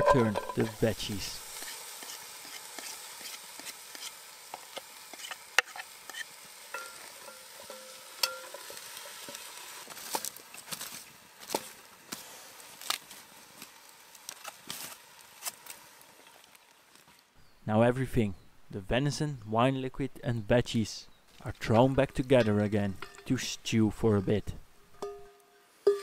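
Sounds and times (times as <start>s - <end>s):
vegetables sizzling in a pot: 0.0s - 17.0s.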